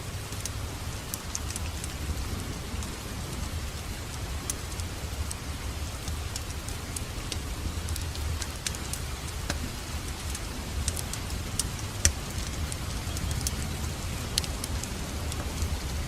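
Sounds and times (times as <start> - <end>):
low rumble of fire: 0.0 - 16.0
wood fire crackling: 0.0 - 16.0.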